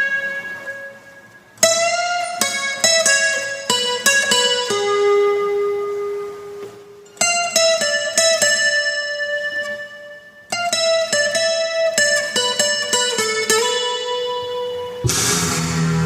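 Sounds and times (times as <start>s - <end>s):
plucked guitar notes: 0.0s - 16.0s.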